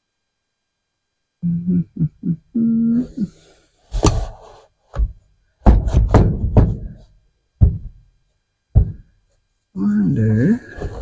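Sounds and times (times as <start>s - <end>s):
man humming: 1.4s - 3.5s.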